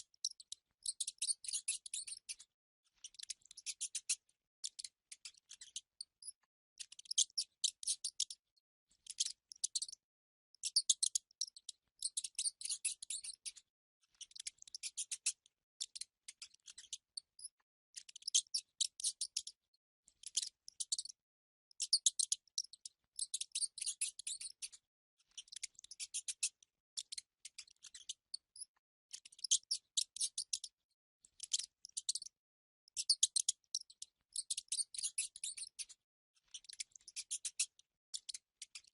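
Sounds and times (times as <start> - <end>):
mice squeaking: 0.0 - 2.4, 7.0 - 8.3, 10.6 - 13.6, 14.2 - 19.6, 20.2 - 21.2, 21.8 - 24.7, 25.3 - 30.7, 31.4 - 32.4, 33.0 - 35.9, 36.5 - 38.8.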